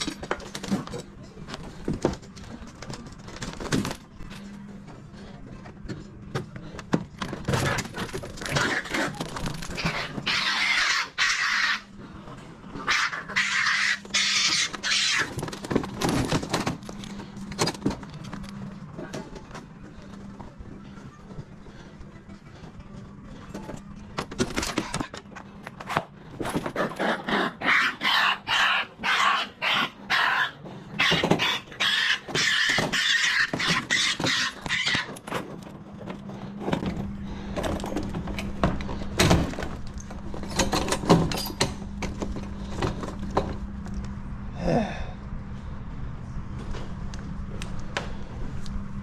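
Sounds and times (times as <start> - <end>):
steady low hum: 0.0 - 49.0
raccoons calling harshly: 8.4 - 12.0, 12.8 - 15.6, 26.8 - 35.2.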